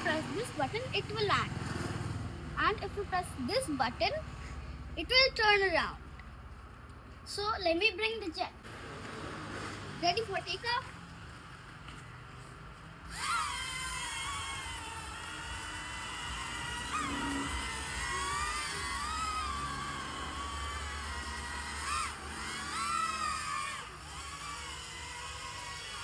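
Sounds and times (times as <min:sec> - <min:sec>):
electric motors whining: 0:00.0 - 0:01.4, 0:13.0 - 0:26.0.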